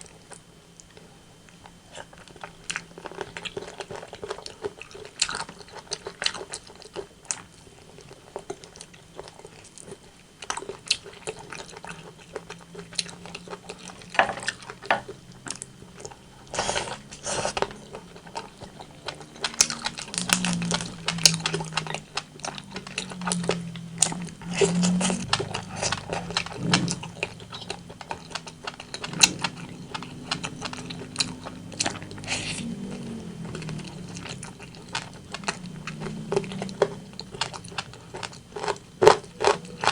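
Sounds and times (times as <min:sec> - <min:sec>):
wet chewing and biting: 0:00.0 - 0:39.9
low hum: 0:11.2 - 0:39.9.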